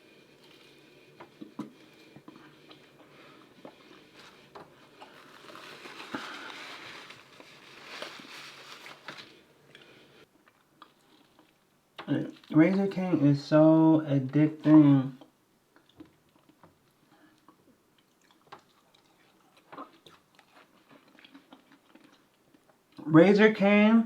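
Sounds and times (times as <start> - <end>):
person chewing: 0.3 - 8.3, 9.7 - 12.5, 15.2 - 23.0.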